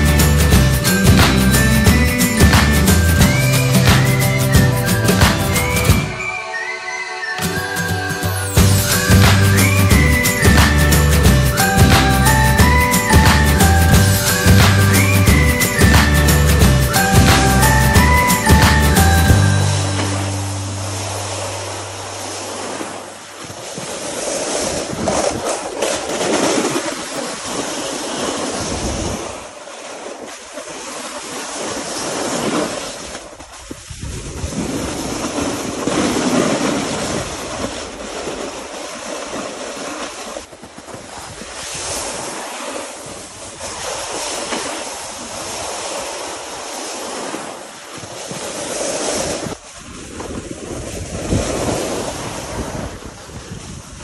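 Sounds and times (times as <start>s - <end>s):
music: 0.0s - 22.6s
wind rushing over microphone: 8.6s - 29.5s, 31.6s - 38.8s, 48.0s - 54.0s
ski edges scraping over snow: 23.4s - 54.0s.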